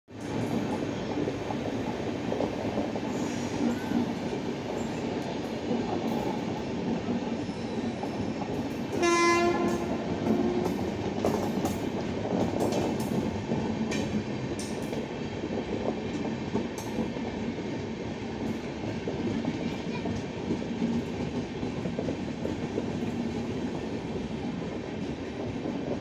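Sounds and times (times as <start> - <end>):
train wheels rumbling: 0.1 - 26.0
train horn: 9.0 - 10.9.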